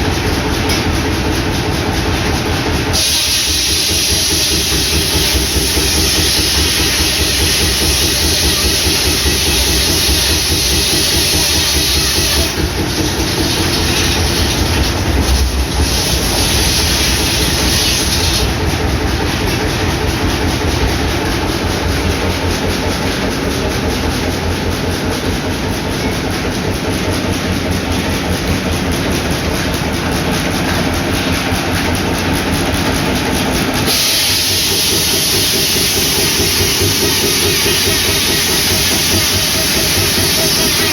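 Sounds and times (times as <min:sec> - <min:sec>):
engine steady beat: 0:00.0 - 0:40.9
saw and chip blower hiss: 0:03.0 - 0:18.6, 0:33.9 - 0:40.9.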